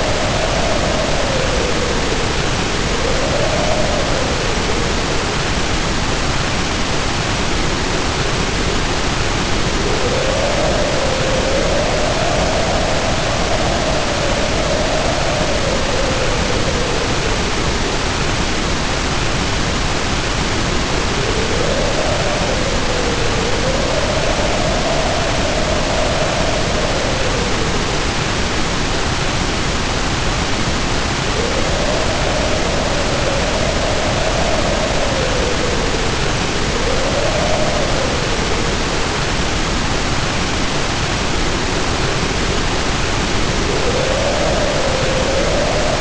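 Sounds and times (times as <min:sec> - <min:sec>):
heavy rain pouring: 0:00.0 - 0:46.0
wind howling: 0:00.0 - 0:46.0.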